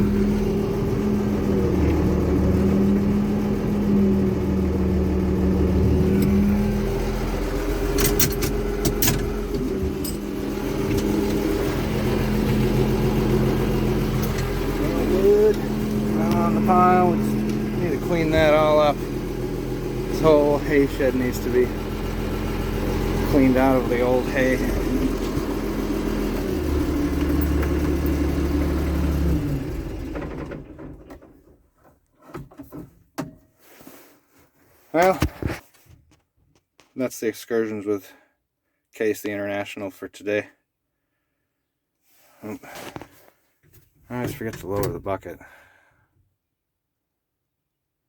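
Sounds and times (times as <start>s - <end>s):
tractor engine running: 0.0s - 31.3s.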